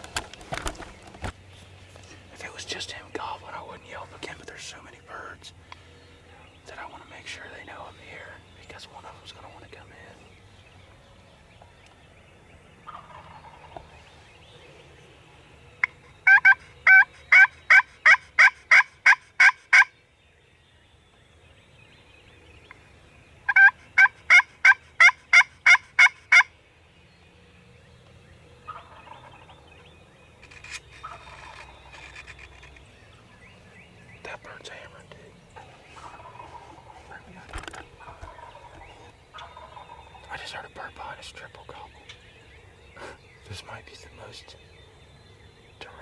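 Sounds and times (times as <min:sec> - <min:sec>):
distant turkey gobbling: 0:12.8 - 0:13.9, 0:15.8 - 0:19.9, 0:23.4 - 0:26.5, 0:28.6 - 0:29.7, 0:30.4 - 0:32.6, 0:34.3 - 0:40.4
turkey call yelps: 0:15.8 - 0:19.9, 0:23.5 - 0:26.5.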